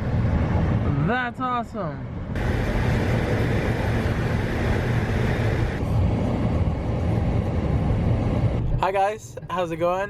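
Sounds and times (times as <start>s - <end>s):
car road and wind noise: 0.0s - 10.0s.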